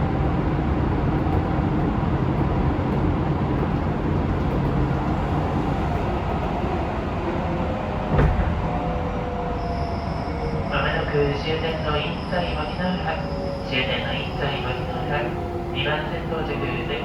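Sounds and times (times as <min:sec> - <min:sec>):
train wheels rumbling on rail: 0:00.0 - 0:12.6.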